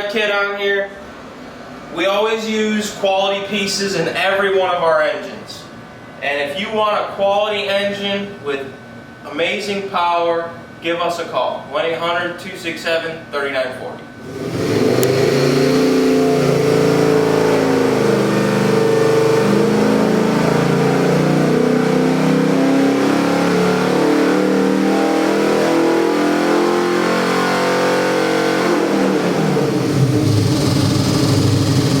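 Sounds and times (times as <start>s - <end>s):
engine revving on a dyno: 14.2s - 32.0s.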